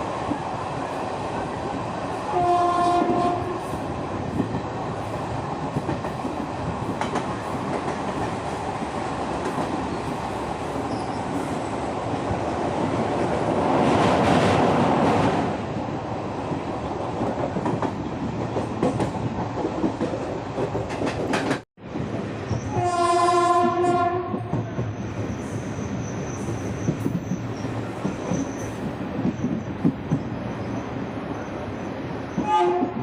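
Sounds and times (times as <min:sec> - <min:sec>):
train rumbling and rattling: 0:00.0 - 0:33.0
train horn: 0:02.3 - 0:03.8, 0:22.6 - 0:24.6, 0:32.4 - 0:33.0.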